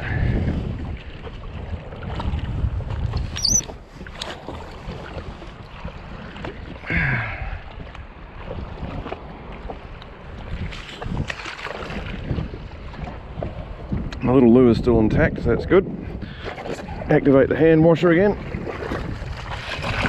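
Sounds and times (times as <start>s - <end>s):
wind buffeting microphone: 0.0s - 20.0s
brief high squeak: 3.3s - 3.7s.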